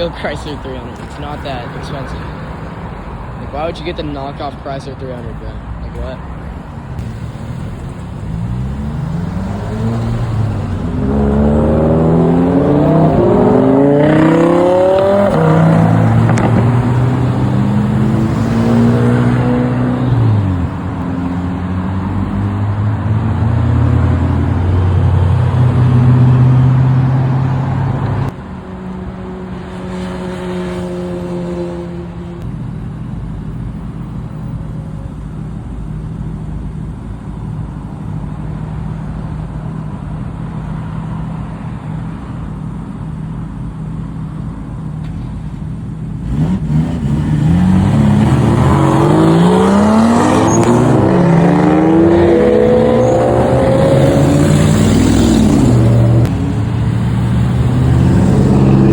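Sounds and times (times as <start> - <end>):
car engine revving: 6.9 - 34.6, 45.4 - 58.9.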